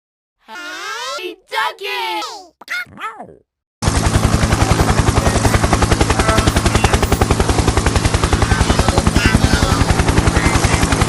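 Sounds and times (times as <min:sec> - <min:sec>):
fast even throbbing pulses: 0:03.8 - 0:11.0
steady low drone: 0:03.8 - 0:11.0.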